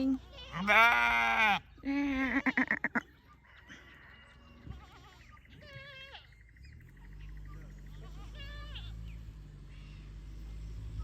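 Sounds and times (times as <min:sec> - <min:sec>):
goat or sheep bleating: 0:00.1 - 0:03.0, 0:04.5 - 0:06.4, 0:07.8 - 0:09.1.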